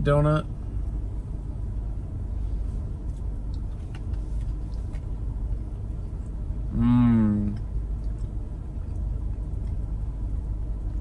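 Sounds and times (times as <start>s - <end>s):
soft chewing clicks: 3.0s - 6.4s, 7.4s - 11.0s.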